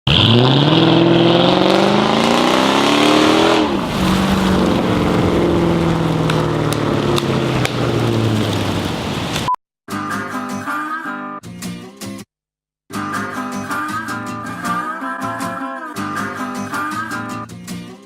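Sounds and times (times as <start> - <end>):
car engine accelerating: 0.1 - 9.3.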